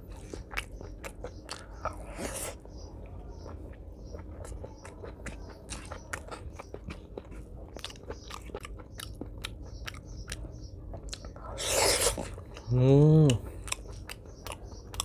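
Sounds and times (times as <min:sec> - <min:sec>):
chewing with wet mouth clicks: 0:00.0 - 0:15.0.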